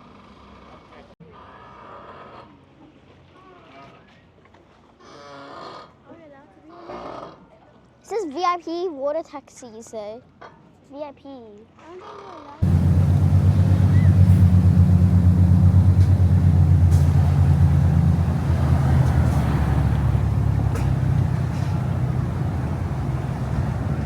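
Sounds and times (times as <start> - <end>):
large engine rumbling: 12.6 - 24.0.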